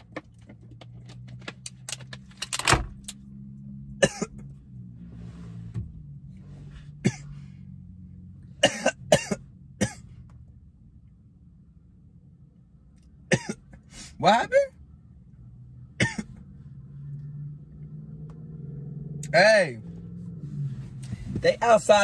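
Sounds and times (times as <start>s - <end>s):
car engine idling: 0.0s - 22.0s
person coughing: 4.0s - 4.5s, 7.0s - 7.4s, 8.6s - 10.1s, 13.3s - 13.8s, 16.0s - 16.4s.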